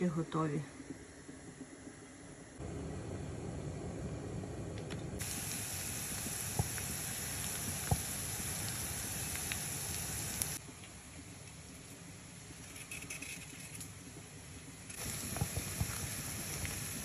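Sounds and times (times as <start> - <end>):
vegetables sizzling in oil: 5.2 - 10.6, 14.9 - 17.0.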